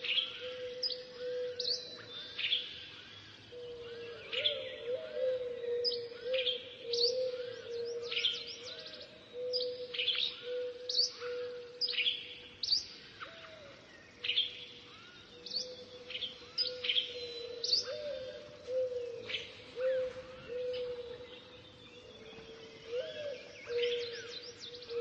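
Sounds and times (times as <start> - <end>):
birds chirping: 5.6 - 25.0.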